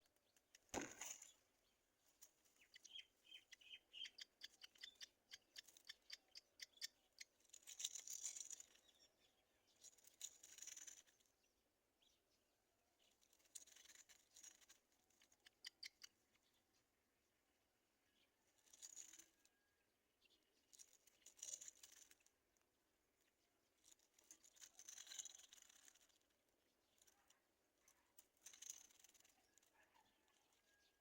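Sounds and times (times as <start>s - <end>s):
short high bird chirps: 2.6s - 6.9s
faint rustling and clicking: 7.0s - 11.4s, 13.0s - 16.6s, 18.2s - 19.7s, 20.3s - 31.0s.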